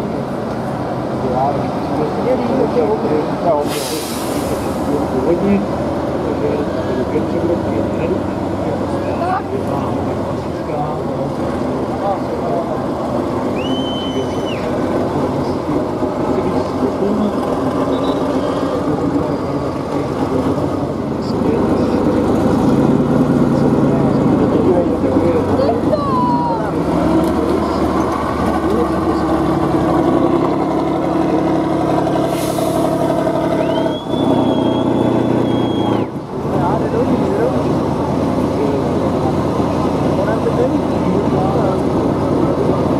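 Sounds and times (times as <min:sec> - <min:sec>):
heavy vehicle engine rumbling: 0:00.0 - 0:42.9
air hiss: 0:03.6 - 0:04.9
high steady whistle: 0:13.6 - 0:14.7, 0:33.6 - 0:36.1.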